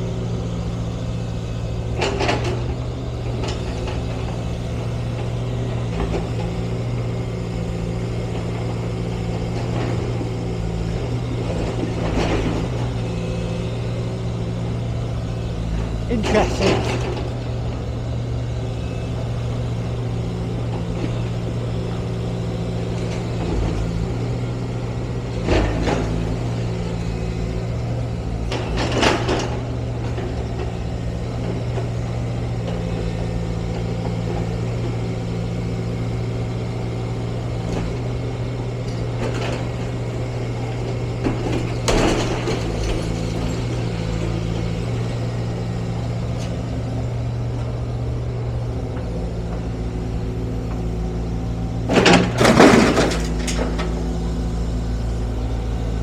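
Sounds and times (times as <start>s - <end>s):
heavy diesel engine running: 0.0s - 56.0s
loud crashes of masonry: 51.9s - 54.0s.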